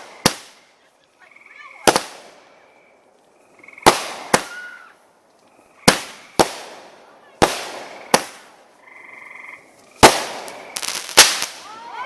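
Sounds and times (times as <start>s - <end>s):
firework bangs: 0.0s - 0.6s, 1.8s - 2.4s, 3.8s - 4.9s, 5.8s - 8.6s, 9.9s - 12.0s
faint firework whistling: 3.8s - 6.9s, 9.5s - 12.0s.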